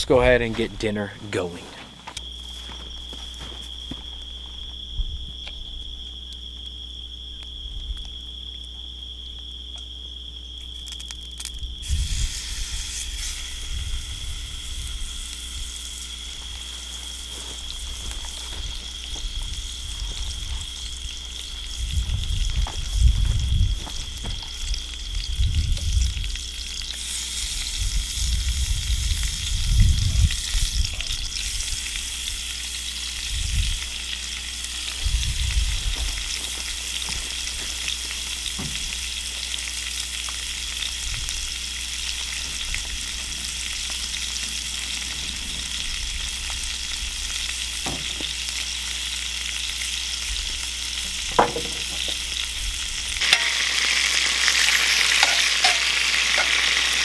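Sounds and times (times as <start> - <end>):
meat sizzling in a skillet: 11.8 - 57.0
low rumbles: 40.8 - 48.4.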